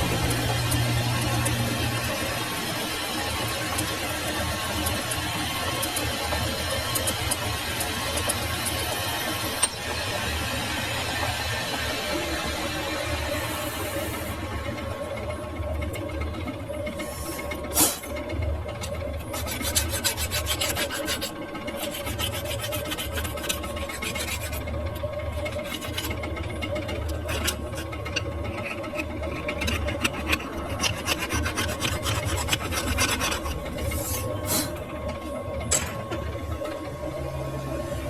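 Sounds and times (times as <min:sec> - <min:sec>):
machine hum: 0:00.0 - 0:38.0
file rasping on metal: 0:19.2 - 0:34.9.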